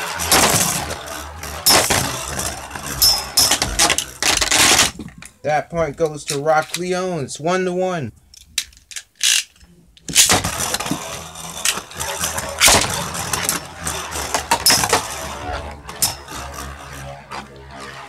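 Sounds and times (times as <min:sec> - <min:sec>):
spinning tops launched: 0:00.0 - 0:05.0, 0:09.2 - 0:17.2
spinning tops rattling whirr: 0:00.0 - 0:07.1, 0:08.6 - 0:18.0
metal clacks of tops colliding: 0:00.1 - 0:01.0, 0:01.6 - 0:02.3, 0:03.0 - 0:05.0, 0:12.5 - 0:15.2, 0:15.9 - 0:16.4.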